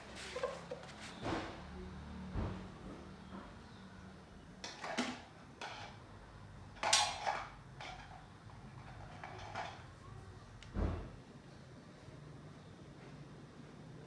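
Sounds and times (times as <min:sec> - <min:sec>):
tools scraping and knocking: 0:00.0 - 0:01.5, 0:04.6 - 0:06.0, 0:06.8 - 0:09.9.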